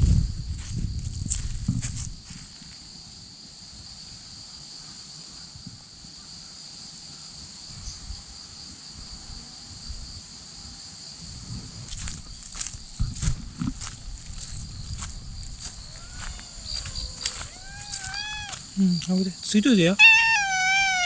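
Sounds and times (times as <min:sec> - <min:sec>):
footsteps on dry leaves: 0:00.5 - 0:02.6, 0:11.9 - 0:19.2
insects singing: 0:11.9 - 0:21.0.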